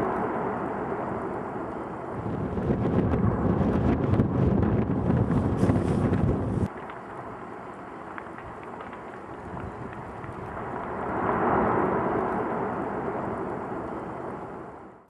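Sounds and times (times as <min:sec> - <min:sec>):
volcanic eruption rush and rumble: 0:00.0 - 0:15.0.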